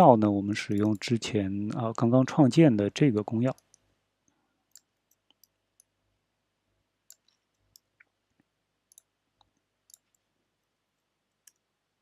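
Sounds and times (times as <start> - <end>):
computer keys clicking: 0.7 - 1.1, 4.7 - 5.9, 7.1 - 7.9, 8.9 - 9.1, 9.9 - 10.2.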